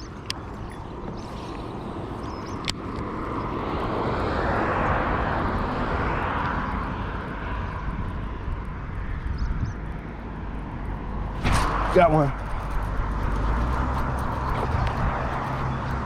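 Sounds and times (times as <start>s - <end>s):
steady low rumble: 3.4s - 16.0s
vehicle passing by: 11.0s - 16.0s.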